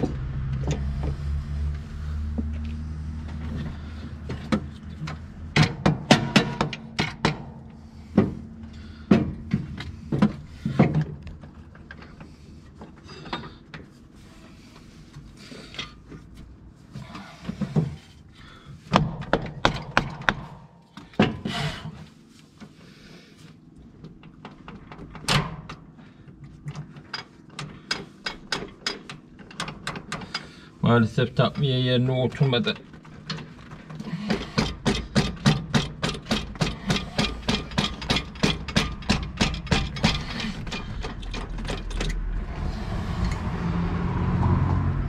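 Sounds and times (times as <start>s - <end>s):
tools and metal parts knocking: 4.3s - 7.6s, 26.7s - 30.6s, 32.8s - 42.2s.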